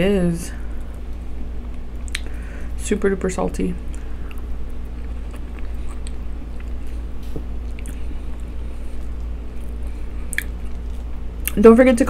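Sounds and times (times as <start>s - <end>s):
room fan humming: 0.0s - 12.0s
wet mouth clicks: 2.0s - 2.3s, 10.3s - 10.6s
person chewing food: 3.9s - 11.6s.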